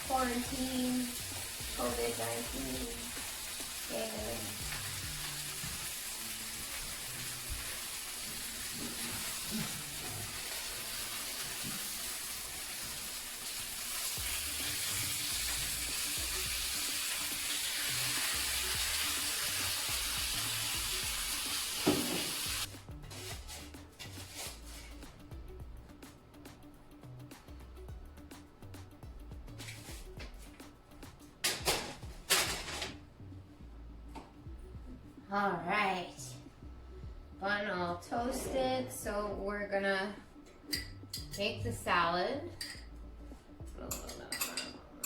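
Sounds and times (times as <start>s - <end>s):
food sizzling in a pan: 0.0s - 23.3s
faint background music: 0.0s - 45.0s.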